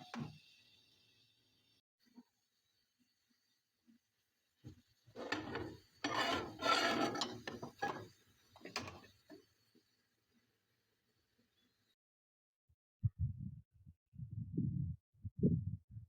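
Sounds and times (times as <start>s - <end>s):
scraping and rustling: 5.2s - 9.1s.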